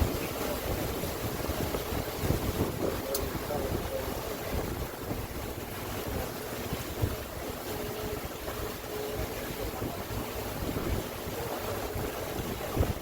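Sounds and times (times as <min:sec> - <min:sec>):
boat motor noise: 0:00.0 - 0:13.0
water rushing: 0:00.0 - 0:13.0
wind buffeting microphone: 0:00.0 - 0:13.0.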